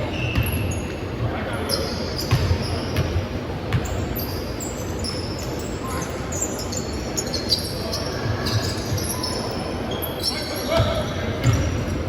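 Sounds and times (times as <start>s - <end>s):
sneakers squeaking on floor: 0.0s - 12.0s
basketball bouncing on court: 2.2s - 4.1s, 10.7s - 12.0s.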